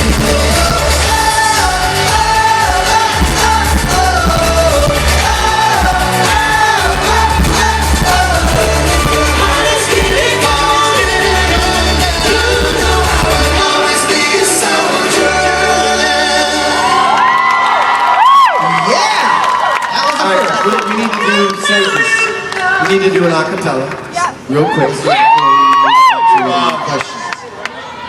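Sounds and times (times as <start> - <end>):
pulsing bass line: 0.0 - 14.3
live pop music: 0.0 - 17.2
person singing: 0.0 - 17.2.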